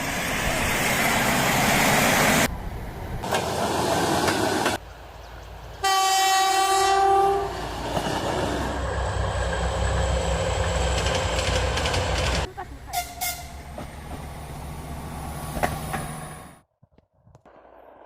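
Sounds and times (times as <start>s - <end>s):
passing diesel train rumble: 0.0s - 16.6s
locomotive horn blast: 5.8s - 7.6s, 12.9s - 13.6s.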